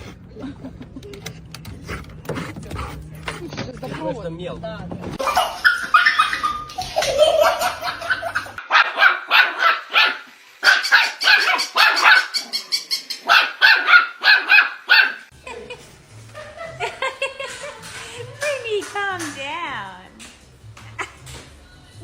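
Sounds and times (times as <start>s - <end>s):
dog barking sharply: 8.7s - 12.4s, 13.2s - 15.2s.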